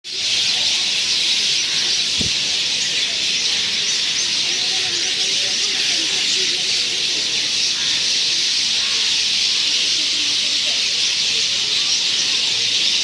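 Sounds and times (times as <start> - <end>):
chorus of birds chirping: 0.0 - 13.0
low thump: 2.2 - 2.4.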